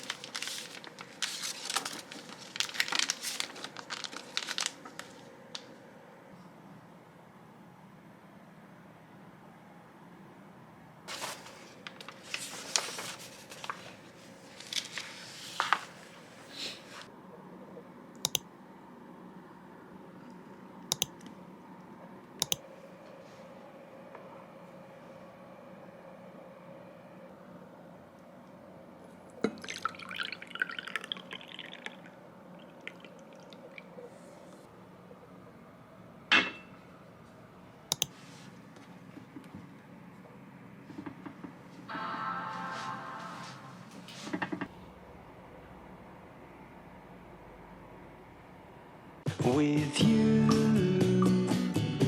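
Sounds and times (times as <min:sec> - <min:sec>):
rustling and crinkling: 0:00.0 - 0:05.8, 0:11.1 - 0:17.1
liquid poured into a glass: 0:29.5 - 0:33.9.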